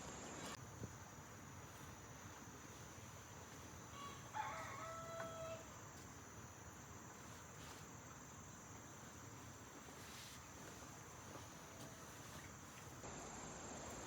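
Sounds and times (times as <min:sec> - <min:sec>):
steady high hiss: 0:00.0 - 0:14.0
rooster crowing: 0:03.9 - 0:05.8.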